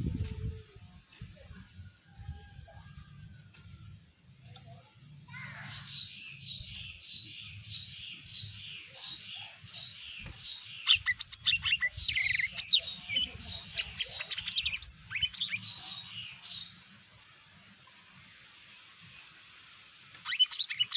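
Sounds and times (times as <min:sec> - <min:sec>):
bird singing: 0:04.4 - 0:16.8, 0:20.2 - 0:20.9.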